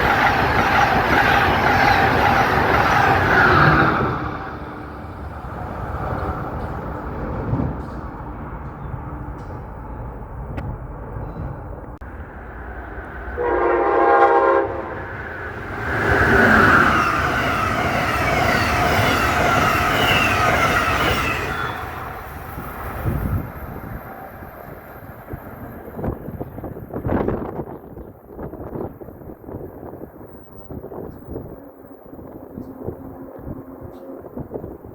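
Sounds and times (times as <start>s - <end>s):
train passing at speed: 0.0s - 34.9s
train horn blast: 13.3s - 15.1s.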